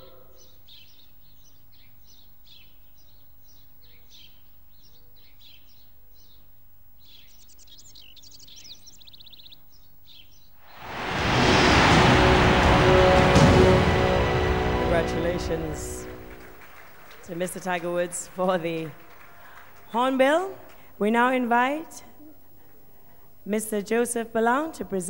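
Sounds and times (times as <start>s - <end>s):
small birds chirping: 0.0s - 10.6s
loud steady rush of noise: 10.7s - 17.7s.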